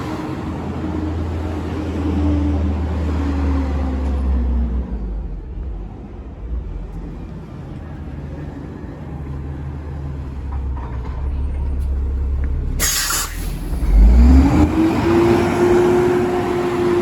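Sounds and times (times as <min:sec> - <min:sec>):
garbage truck engine revving: 0:12.8 - 0:17.0.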